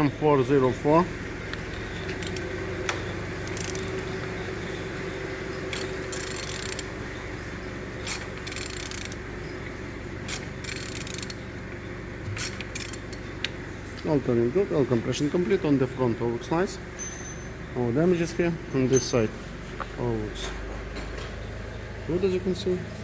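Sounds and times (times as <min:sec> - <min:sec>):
engine internals rubbing: 0:00.0 - 0:23.0
steady low hum: 0:00.0 - 0:23.0
ratchet wrench clicks: 0:02.1 - 0:04.0, 0:05.7 - 0:06.9, 0:08.0 - 0:09.2, 0:10.3 - 0:11.4, 0:12.4 - 0:13.6.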